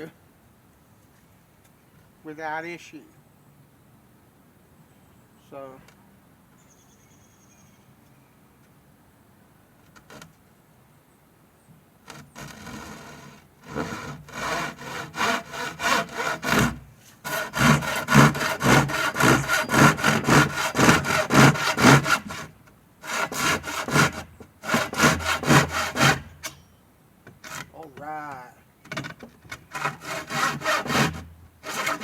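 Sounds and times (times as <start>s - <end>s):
hand saw cutting wood: 12.1s - 26.6s, 27.4s - 27.9s, 28.9s - 32.0s.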